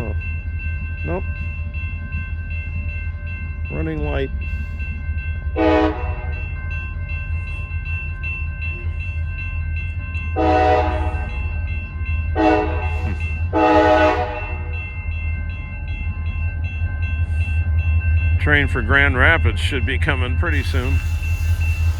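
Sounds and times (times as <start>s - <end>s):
crossing bell ringing: 0.0s - 21.9s
diesel locomotive engine rumble: 0.0s - 21.9s
locomotive air horn blasts: 5.6s - 6.3s, 10.4s - 11.3s, 12.4s - 14.7s.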